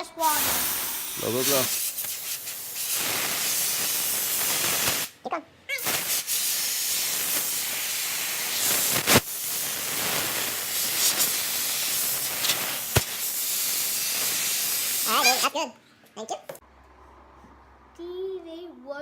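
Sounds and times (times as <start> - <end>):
compressed air hissing: 0.2 - 5.2, 5.8 - 15.6.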